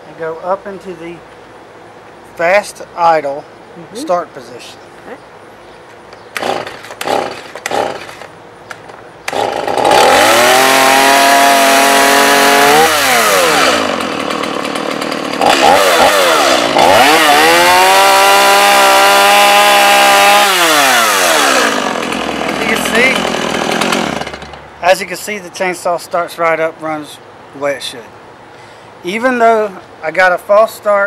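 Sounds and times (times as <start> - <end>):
chainsaw engine revving and idling: 6.3 - 8.3, 9.2 - 24.8
chainsaw starter cord tugs: 6.3 - 24.7.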